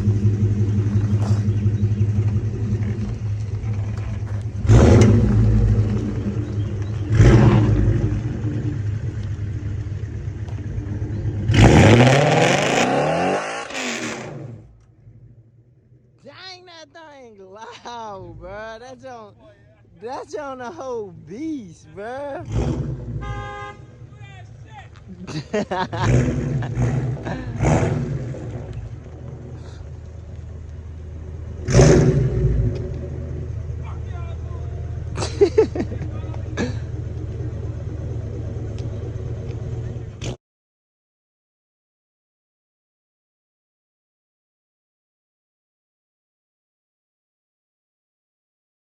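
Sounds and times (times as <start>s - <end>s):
car engine revving hard: 0.0s - 14.7s, 22.3s - 23.8s, 25.5s - 29.9s, 31.5s - 33.8s
person speaking: 16.2s - 22.5s.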